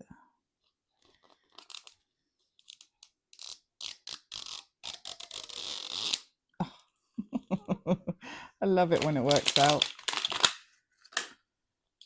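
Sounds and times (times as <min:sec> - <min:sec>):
plastic packaging crinkling: 0:08.8 - 0:11.3.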